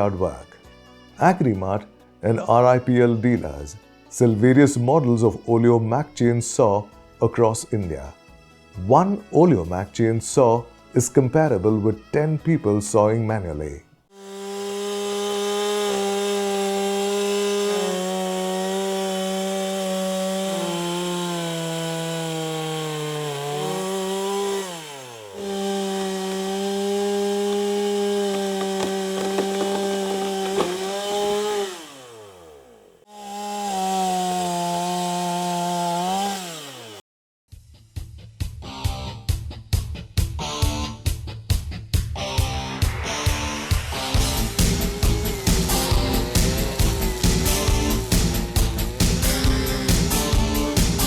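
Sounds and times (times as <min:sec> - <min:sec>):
chainsaw cutting wood: 0:14.1 - 0:37.0, 0:44.2 - 0:51.0.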